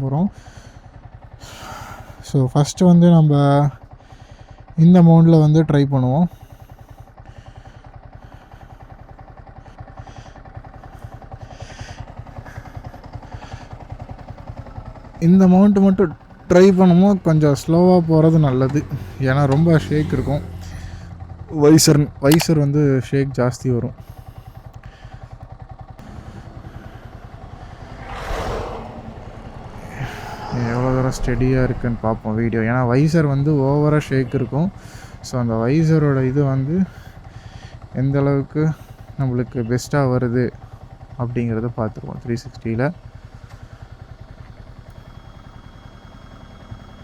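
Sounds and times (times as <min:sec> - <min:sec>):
motorcycle engine idling: 0:00.0 - 0:47.0
rush of noise: 0:26.0 - 0:33.8.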